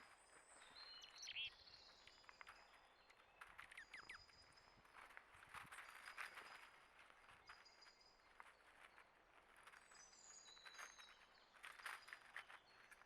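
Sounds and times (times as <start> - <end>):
faint songbird chirps: 0.0 - 13.0.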